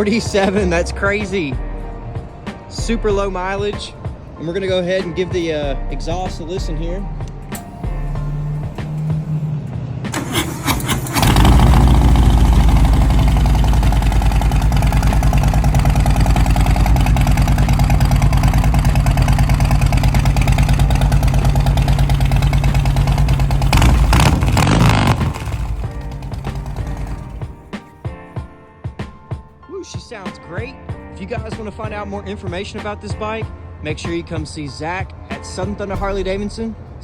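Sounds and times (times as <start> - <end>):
motorcycle engine idling: 7.6 - 27.7
motorcycle engine cranking: 10.1 - 27.6.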